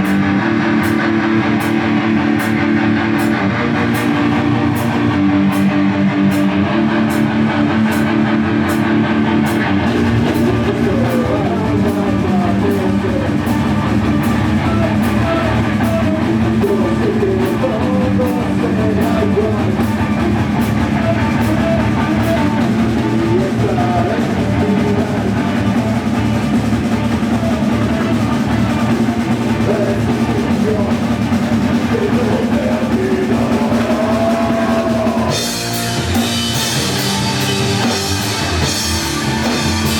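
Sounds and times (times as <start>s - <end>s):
bending guitar melody line: 0.0s - 39.9s
heavy metal band playing live: 0.0s - 39.9s.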